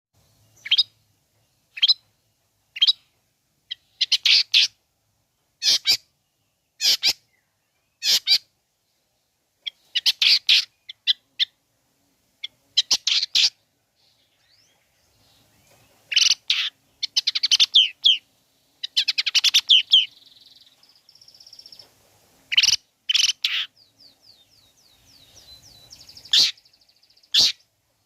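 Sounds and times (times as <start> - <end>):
shrike calling: 8.0 - 8.5, 16.1 - 21.8, 22.5 - 27.7.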